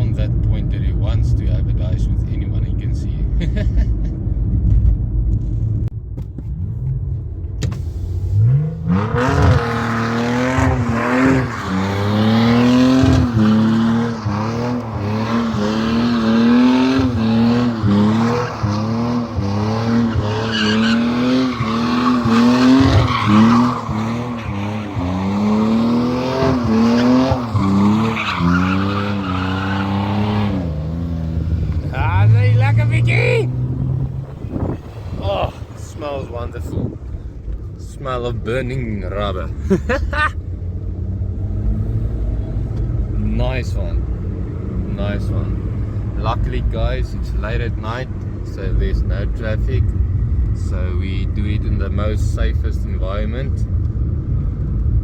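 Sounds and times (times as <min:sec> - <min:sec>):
car engine revving: 0:06.4 - 0:55.0
tyres squealing: 0:09.0 - 0:36.3.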